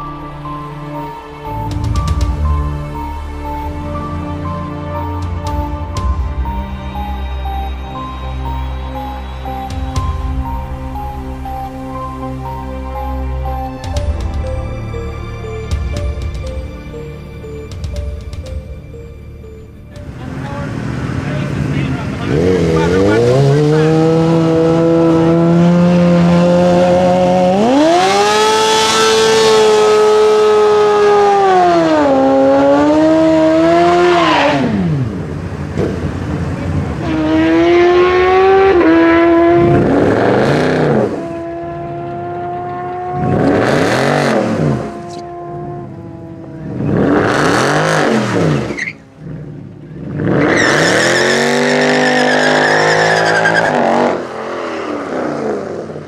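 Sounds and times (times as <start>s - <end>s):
car engine revving high: 20.0s - 56.0s
cars accelerating past: 20.0s - 56.0s.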